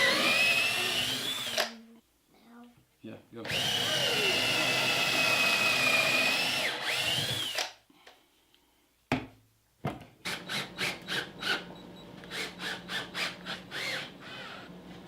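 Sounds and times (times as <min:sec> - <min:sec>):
power drill boring into wood: 0:00.0 - 0:01.8, 0:03.5 - 0:07.8, 0:10.3 - 0:14.7.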